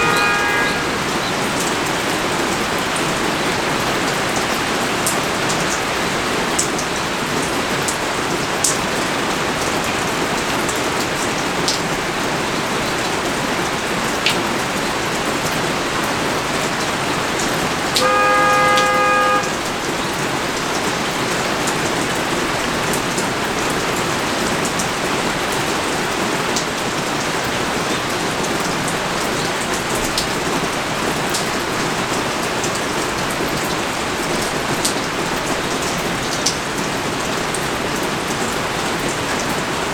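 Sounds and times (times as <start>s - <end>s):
horn single note: 0.0s - 1.6s, 18.0s - 19.9s
heavy rain falling: 0.0s - 39.9s
raindrops ticking close by: 0.0s - 39.9s.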